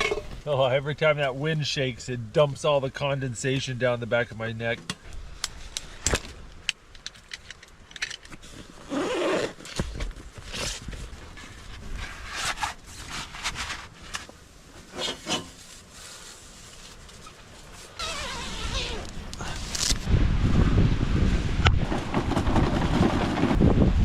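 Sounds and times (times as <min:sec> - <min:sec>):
nylon fabric rustling: 0:08.5 - 0:14.0, 0:14.8 - 0:20.0
tent zipper zipping: 0:08.7 - 0:10.8, 0:17.2 - 0:20.0
low wind rumble: 0:18.0 - 0:24.0.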